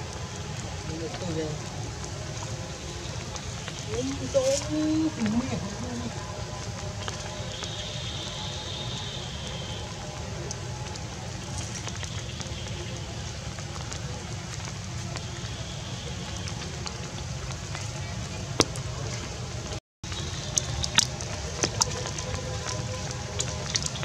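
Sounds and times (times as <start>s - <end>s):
light rain on water and leaves: 0.0s - 24.0s
water drip taps: 20.1s - 24.0s.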